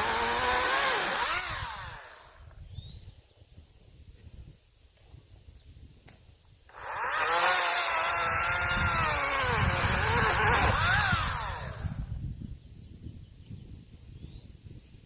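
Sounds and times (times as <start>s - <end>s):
electric chainsaw cutting wood: 0.0s - 2.6s, 6.7s - 12.2s.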